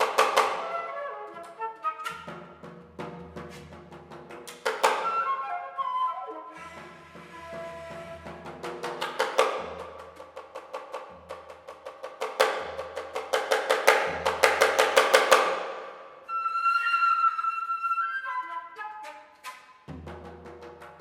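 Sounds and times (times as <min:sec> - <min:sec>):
flute playing: 0:00.5 - 0:02.6, 0:04.9 - 0:08.8, 0:16.3 - 0:19.9.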